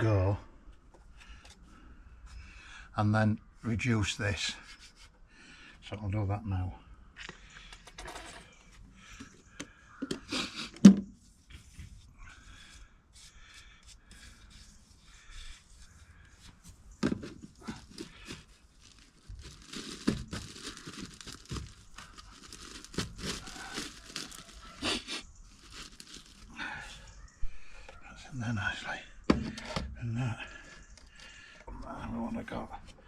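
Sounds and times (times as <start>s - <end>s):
plastic pipe fittings scraping: 13.1s - 26.5s.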